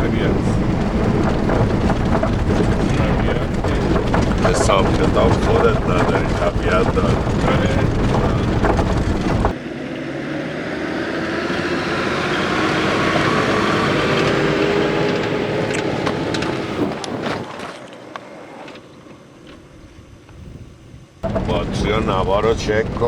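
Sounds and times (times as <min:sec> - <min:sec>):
car running on road: 0:00.0 - 0:19.7, 0:21.2 - 0:23.0.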